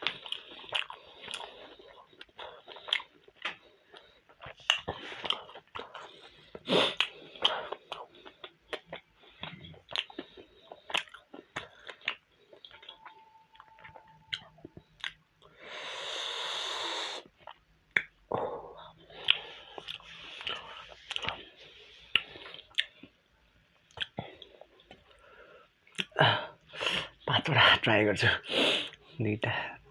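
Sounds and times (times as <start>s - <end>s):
chewing and wet mouth clicks: 0.0s - 6.1s, 7.0s - 15.2s, 17.3s - 18.2s, 19.2s - 21.4s, 22.1s - 23.2s, 23.8s - 25.2s, 25.9s - 26.1s
noisy breath out: 15.5s - 17.3s.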